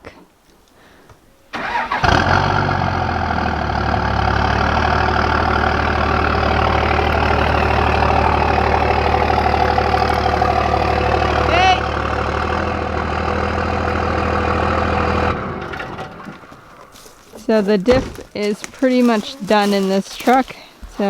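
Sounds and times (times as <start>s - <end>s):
diesel engine cranking and idling: 1.5s - 18.3s.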